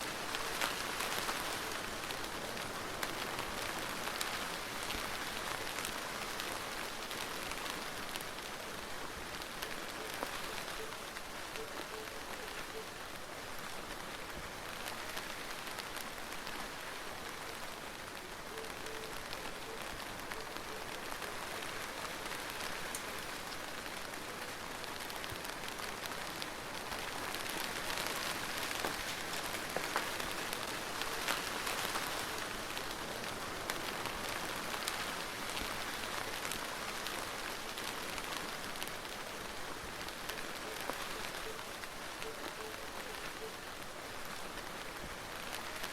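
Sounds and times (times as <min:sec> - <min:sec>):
rain hissing: 0:00.0 - 0:45.9
raindrops ticking on a surface: 0:00.0 - 0:45.9.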